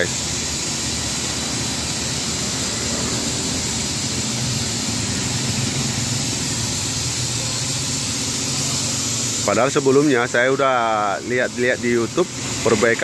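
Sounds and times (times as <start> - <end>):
car engine idling: 0.0 - 13.0
steady hiss: 0.0 - 13.0.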